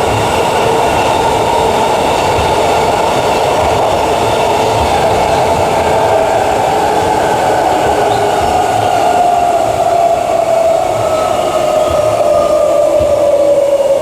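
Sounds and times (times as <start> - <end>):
electric train motors whining: 0.0 - 14.0
wheels rumbling on track: 0.0 - 14.0.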